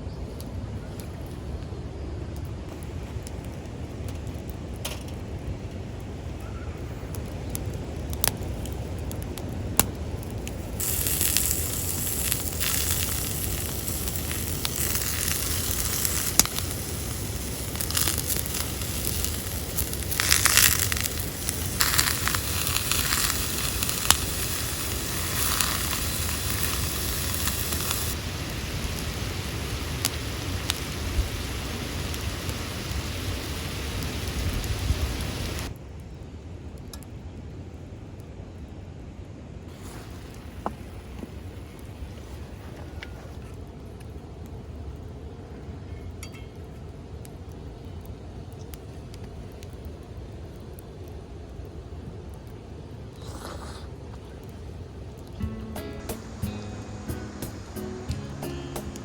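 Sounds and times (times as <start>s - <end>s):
meat sizzling: 10.5s - 35.7s, 55.4s - 59.0s
fat popping: 17.7s - 28.2s.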